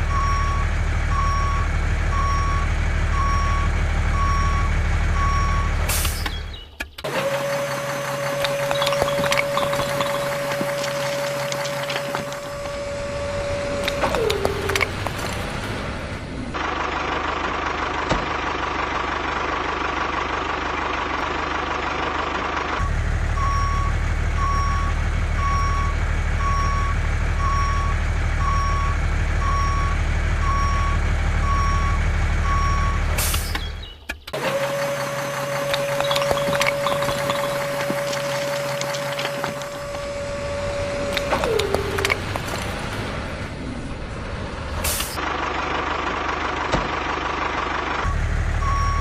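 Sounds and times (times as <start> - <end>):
truck engine running: 0.0 - 49.0
reversing alarm beeping: 0.1 - 6.5, 7.8 - 14.9, 22.8 - 33.8, 35.0 - 42.2, 48.1 - 49.0.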